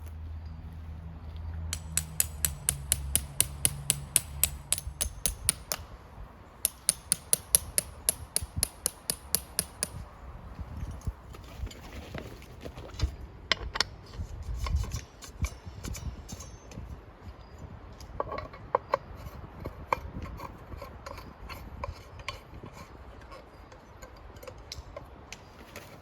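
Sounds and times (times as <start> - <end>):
rapid hammer blows: 1.8 - 5.9.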